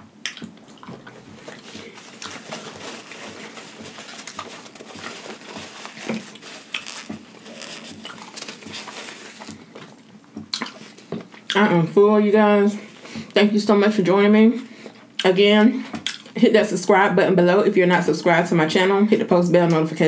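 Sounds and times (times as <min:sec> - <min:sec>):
chewing with wet mouth smacks: 0:10.5 - 0:11.6.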